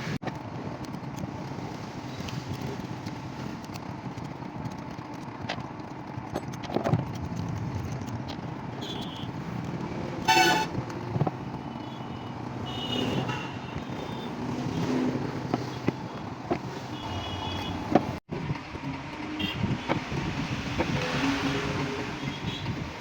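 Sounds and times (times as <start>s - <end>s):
vehicle horn toot: 8.8s - 9.3s, 10.2s - 10.8s, 11.8s - 14.4s, 16.9s - 17.8s.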